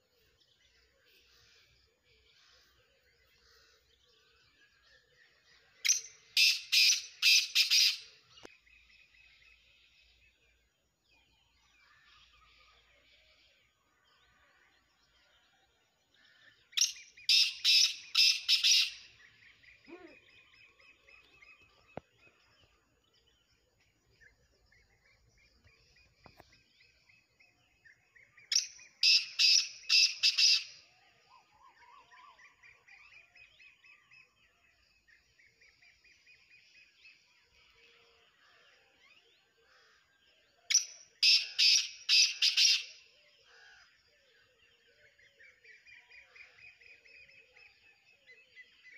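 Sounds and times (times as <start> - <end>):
faint bird chirping: 0.0 - 48.9
bird harsh sharp calls: 5.8 - 8.2, 16.6 - 21.8, 28.4 - 31.6, 40.7 - 43.0.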